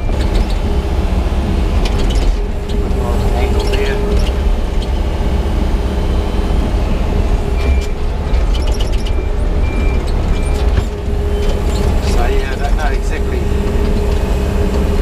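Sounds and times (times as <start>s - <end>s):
excavator diesel engine running: 0.0s - 15.0s
short high squeaks and clicks: 7.6s - 12.4s.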